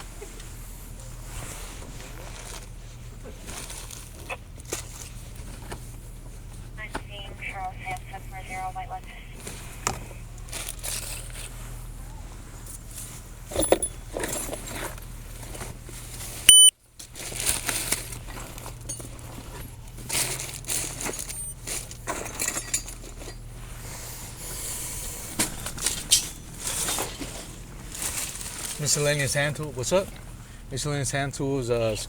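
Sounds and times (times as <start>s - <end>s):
items handled with clicks and rustles: 0.0s - 30.5s
high-pitched electronic beep: 16.5s - 16.7s.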